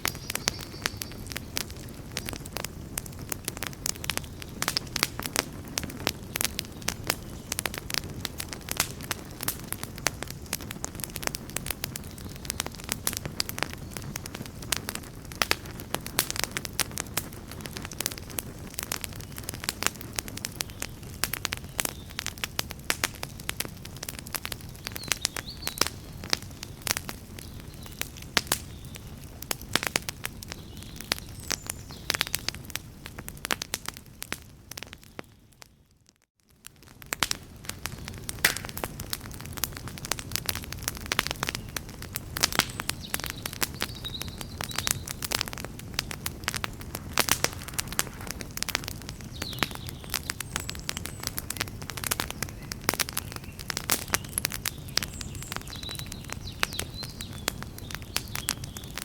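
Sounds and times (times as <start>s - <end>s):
campfire crackles and pops: 0.0s - 59.0s
flame rushing: 45.2s - 49.2s.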